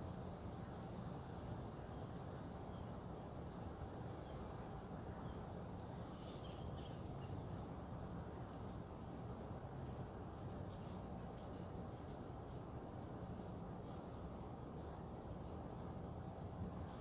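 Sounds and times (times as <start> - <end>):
faint bird chirps: 5.1 - 7.6.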